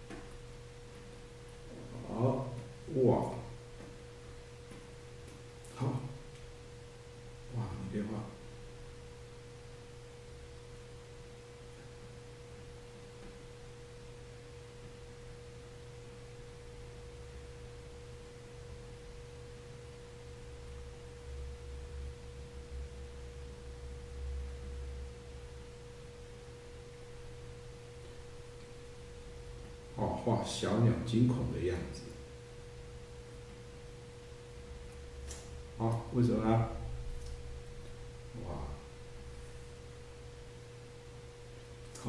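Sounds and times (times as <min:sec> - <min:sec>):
low hum: 0:00.0 - 0:42.0.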